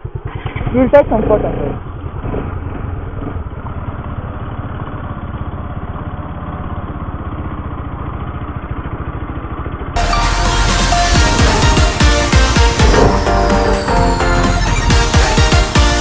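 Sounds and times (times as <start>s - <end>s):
motorcycle engine running: 0.0s - 16.0s
electronic music: 10.0s - 16.0s.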